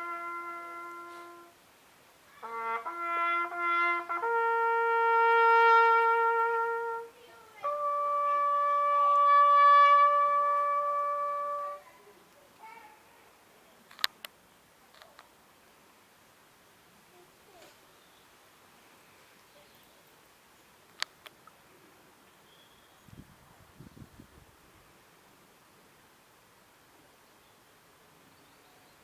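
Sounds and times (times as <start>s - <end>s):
bugle call: 0.0s - 1.6s, 2.4s - 11.8s.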